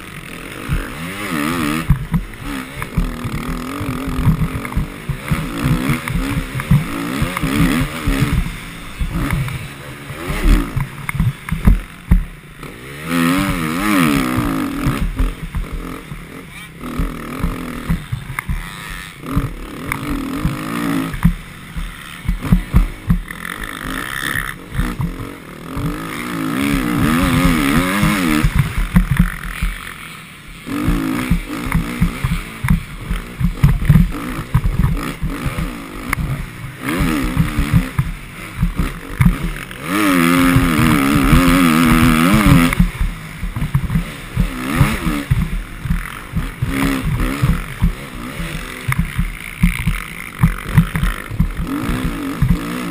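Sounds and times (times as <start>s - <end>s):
motocross bike engine revving: 0.0s - 52.9s
heavy low rumble with knocks: 40.5s - 52.9s.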